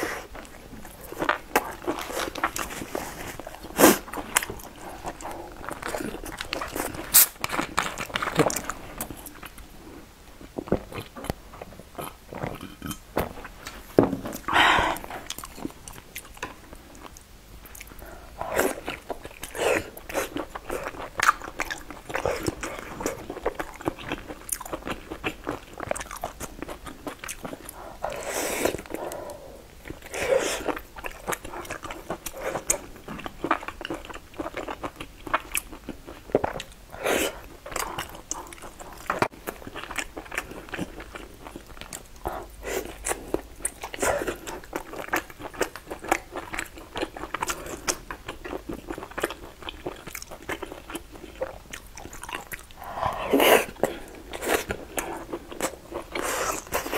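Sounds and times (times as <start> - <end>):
wet chewing: 14.4 - 56.9.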